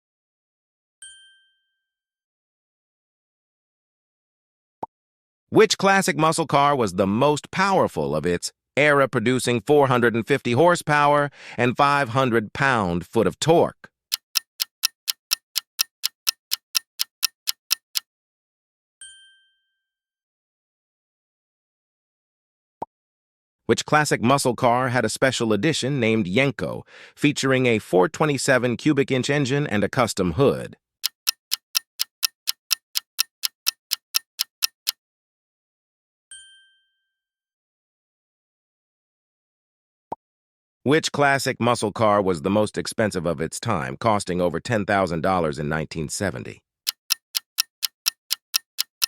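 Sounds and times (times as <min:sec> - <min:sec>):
clock-like ticks: 0:14.1 - 0:18.0, 0:31.0 - 0:35.0, 0:46.9 - 0:49.0.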